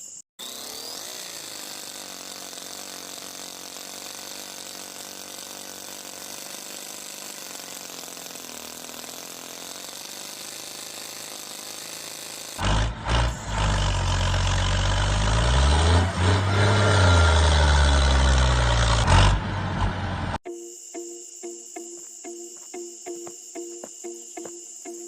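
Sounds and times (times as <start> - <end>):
small electric motor with gears: 0.0 - 19.4.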